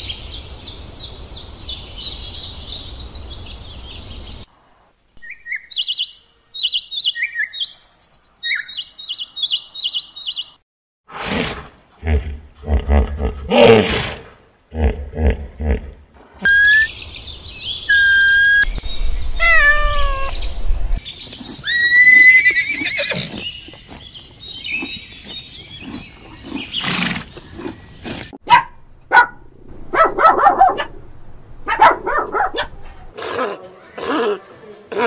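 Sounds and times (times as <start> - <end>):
falling wavering animal call: 17.9 - 18.7, 19.4 - 20.4
long high animal calls: 19.4 - 20.4.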